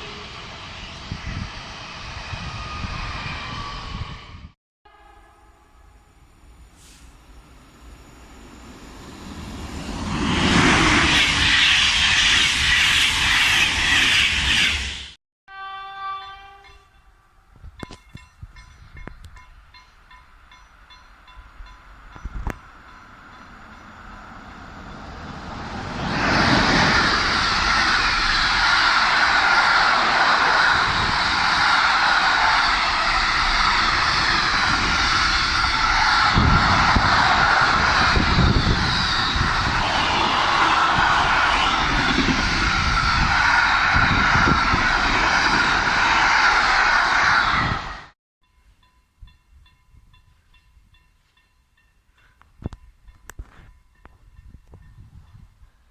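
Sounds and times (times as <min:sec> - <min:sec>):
train passing close by: 0:00.0 - 0:48.2, 0:48.8 - 0:55.9.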